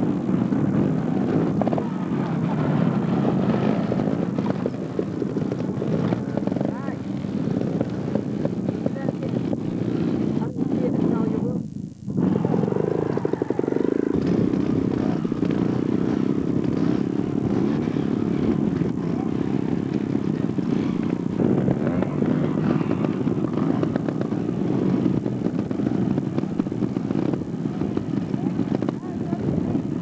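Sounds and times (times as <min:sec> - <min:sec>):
vehicle engine running loudly: 0:00.0 - 0:30.0.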